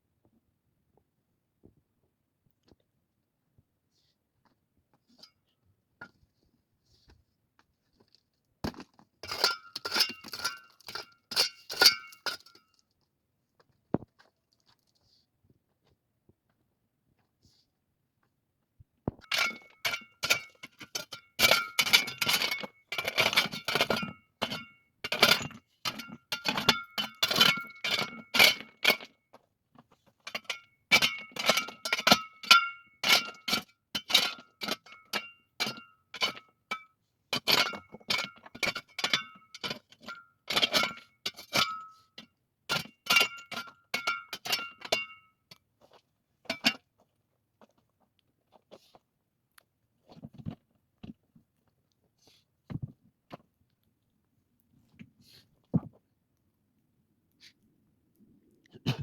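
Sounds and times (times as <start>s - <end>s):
utensil clinking on metal pot: 9.2s - 12.6s, 19.2s - 29.1s, 42.7s - 45.2s.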